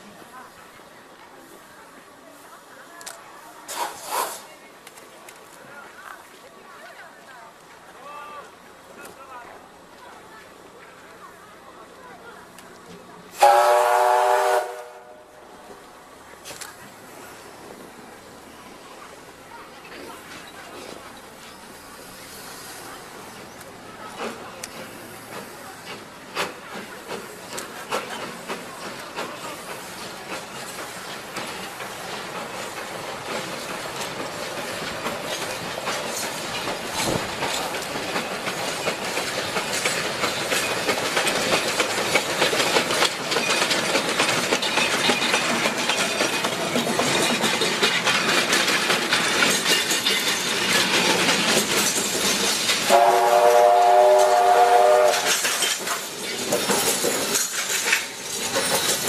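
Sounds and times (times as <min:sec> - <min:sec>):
steam train running on rails: 0:00.0 - 0:59.0
steam whistle chord: 0:13.4 - 0:15.1, 0:52.9 - 0:55.2
wheels clicking on rails: 0:15.5 - 0:59.0.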